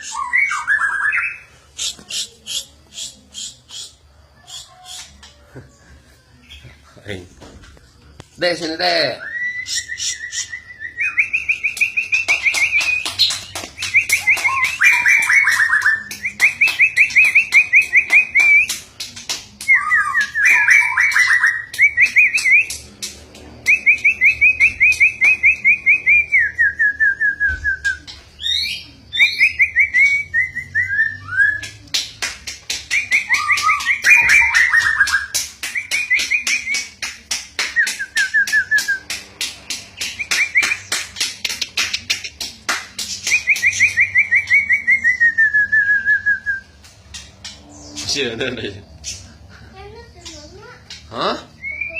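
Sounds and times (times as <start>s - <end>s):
bird singing fast trills: 28.4s - 31.6s
sharp bird clicking notes: 31.6s - 44.6s.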